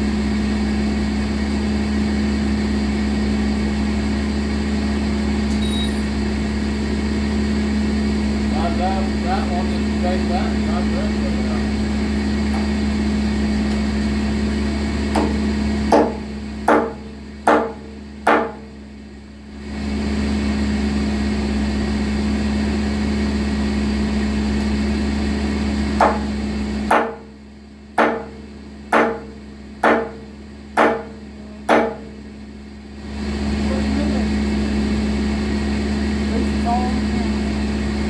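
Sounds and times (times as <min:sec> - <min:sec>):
engine droning: 0:00.0 - 0:38.0
sharp ringing hammer blows: 0:05.5 - 0:06.2.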